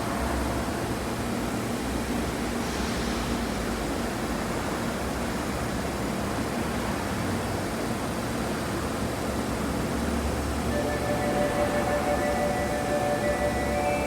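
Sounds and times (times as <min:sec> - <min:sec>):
subway train equipment hum: 0:09.8 - 0:14.0.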